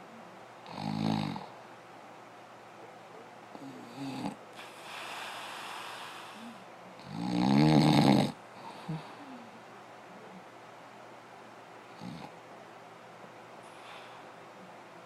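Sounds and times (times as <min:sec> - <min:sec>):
loud buzzing snore: 0:00.7 - 0:01.5, 0:03.6 - 0:08.4
noisy breath: 0:04.5 - 0:06.7, 0:08.5 - 0:09.6, 0:13.6 - 0:14.4.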